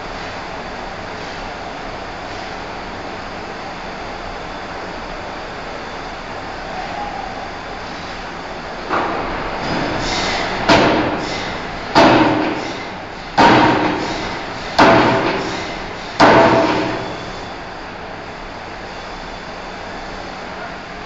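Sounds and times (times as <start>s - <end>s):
machinery hum: 0.0s - 21.0s
forging hammer striking steel: 10.6s - 17.3s.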